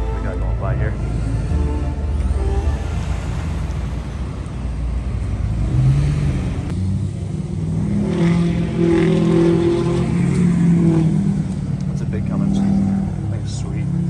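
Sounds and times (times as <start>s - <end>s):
diesel truck engine rumbling: 0.0s - 7.9s.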